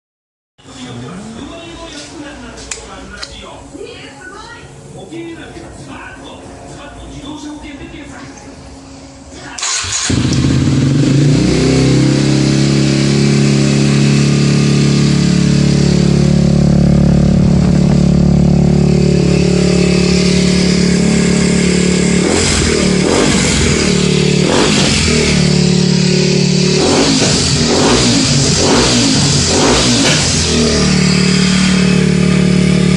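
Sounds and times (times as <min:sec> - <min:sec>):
motorcycle engine idling and revving: 0:09.7 - 0:32.9.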